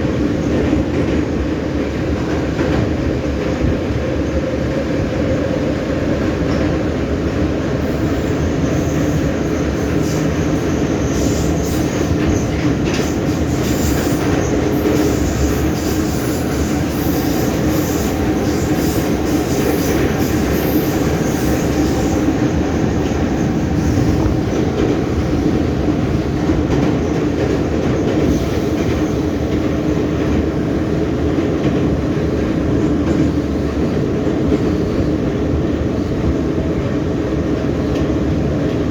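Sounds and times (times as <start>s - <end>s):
train wheels rumbling: 0.0s - 38.9s
high wheel squeal: 8.0s - 24.4s.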